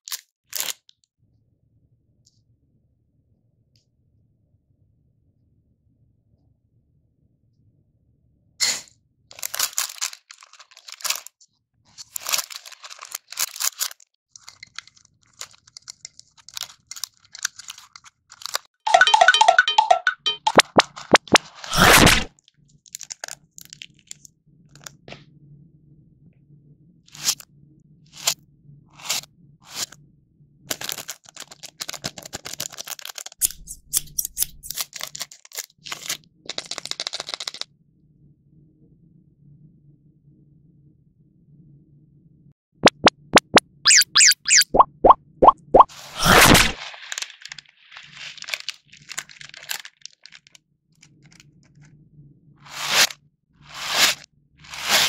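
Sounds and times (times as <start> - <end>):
plastic packaging crinkling: 9.3 - 11.3, 12.0 - 18.7, 22.9 - 24.1, 30.7 - 37.6, 46.0 - 51.4
scissors snipping: 33.4 - 34.8.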